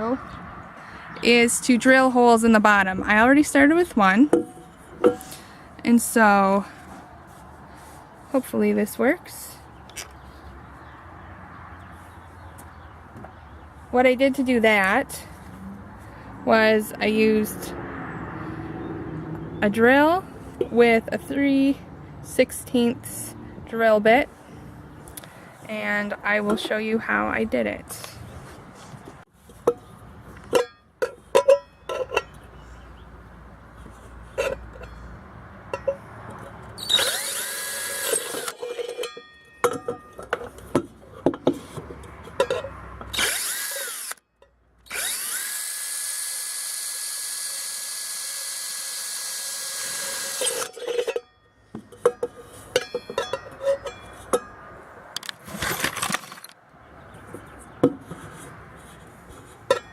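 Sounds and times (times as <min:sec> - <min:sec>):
electric drill drilling metal: 0:36.8 - 0:38.6, 0:43.1 - 0:44.2, 0:44.9 - 0:50.7.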